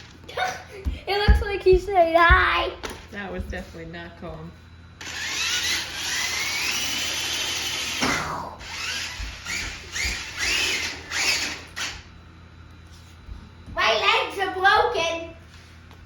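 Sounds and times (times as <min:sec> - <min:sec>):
toy truck electric motor whining: 0:05.0 - 0:12.1.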